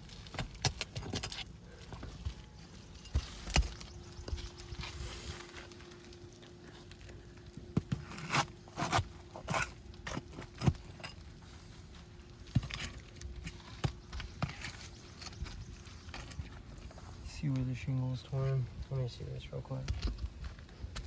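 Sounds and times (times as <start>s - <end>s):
tool scraping roof shingles: 7.8s - 11.6s.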